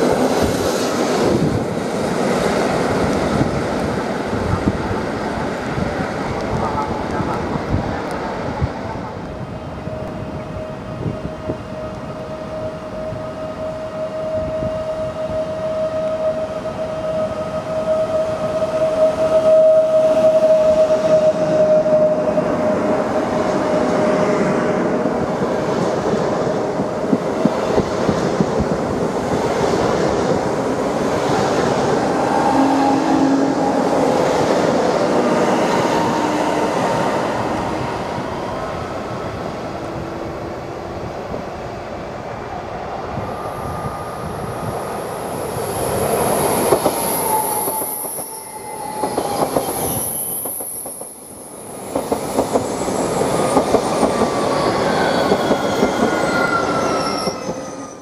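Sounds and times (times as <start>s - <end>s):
high-pitched wheel squeal: 43.3s - 58.0s.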